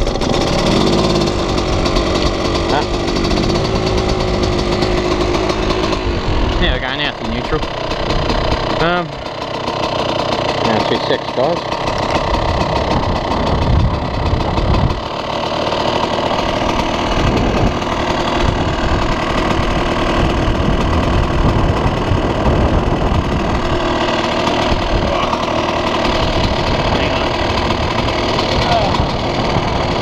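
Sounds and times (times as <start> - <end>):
motorcycle engine idling: 0.0 - 30.0.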